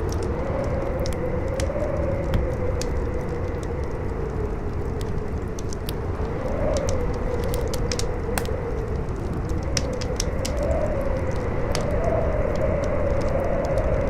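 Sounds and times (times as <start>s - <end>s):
campfire crackling and popping: 0.0s - 14.0s
howling wind: 0.0s - 14.0s.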